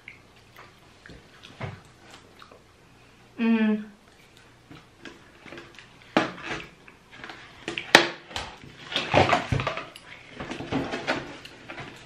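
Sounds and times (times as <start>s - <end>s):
lip smacks while chewing: 0.0s - 2.7s, 4.1s - 4.9s.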